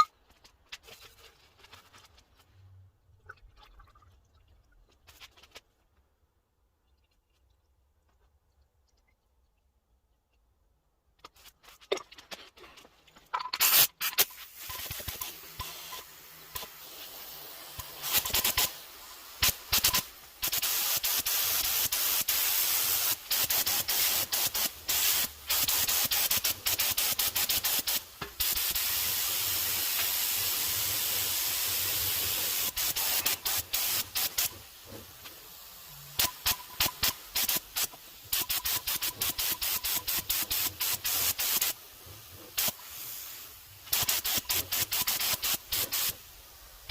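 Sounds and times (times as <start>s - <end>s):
spray nozzle hissing: 13.6s - 46.9s.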